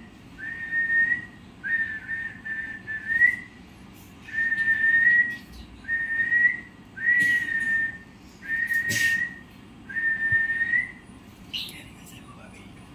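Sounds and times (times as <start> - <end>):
parrot whistling: 0.4 - 3.6, 4.3 - 11.0.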